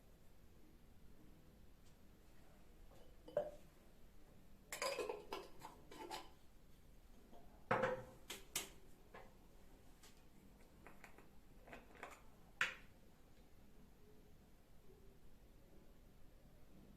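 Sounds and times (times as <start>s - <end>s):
dishes and utensils clinking: 3.0s - 3.6s, 4.7s - 6.4s.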